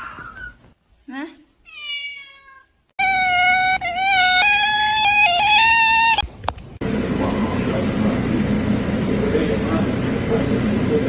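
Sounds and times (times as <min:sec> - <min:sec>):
cat meowing: 0:01.7 - 0:06.2.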